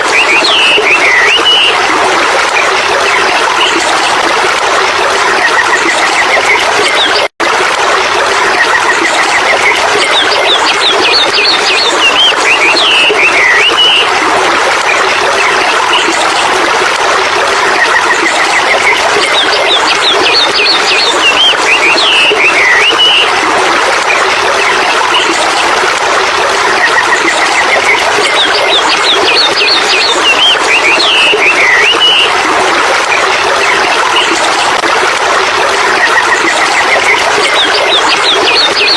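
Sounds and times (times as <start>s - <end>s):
stream running: 0.0s - 38.9s
bird singing: 10.2s - 14.0s.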